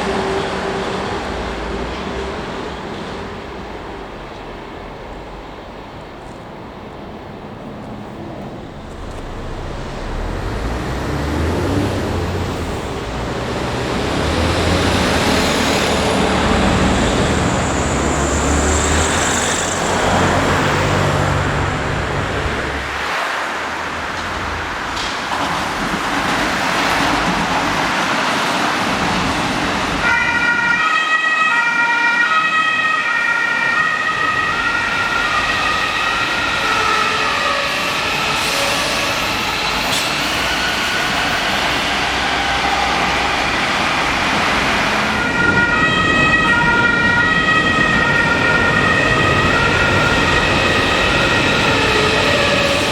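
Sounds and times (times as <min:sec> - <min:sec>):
train passing: 0:00.0 - 0:52.9
two-tone emergency siren: 0:30.0 - 0:37.7, 0:44.9 - 0:52.9.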